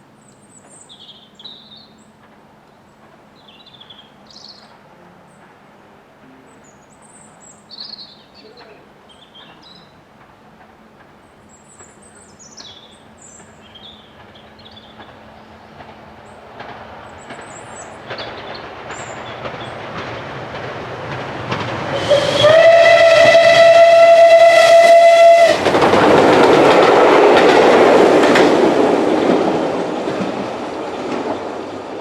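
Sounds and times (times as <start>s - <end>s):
steam locomotive running: 10.0s - 32.0s
steam whistle blast: 21.9s - 25.7s.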